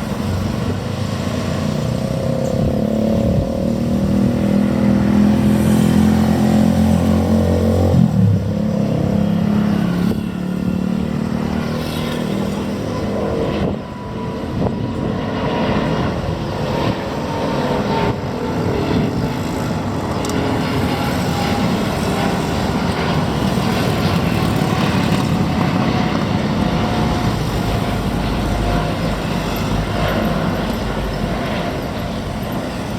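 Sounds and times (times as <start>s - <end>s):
motor vehicle engine hum: 0.0s - 14.0s
jet engines rumbling: 0.0s - 32.9s.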